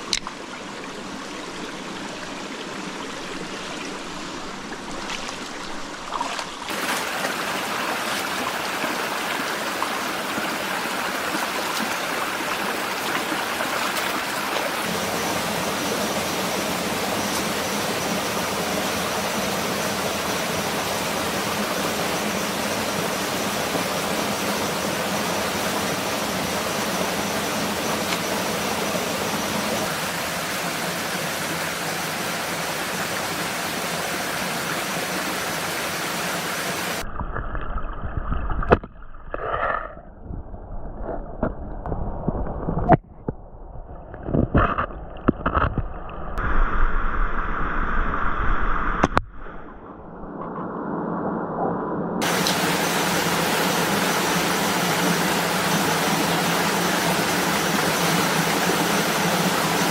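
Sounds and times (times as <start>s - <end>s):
rushing water: 0.0s - 37.1s, 52.2s - 59.9s.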